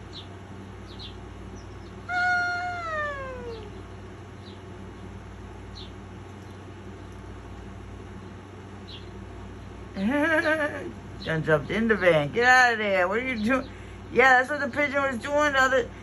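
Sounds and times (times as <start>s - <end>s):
small birds chirping: 0.0s - 16.0s
cat meowing: 2.1s - 3.8s.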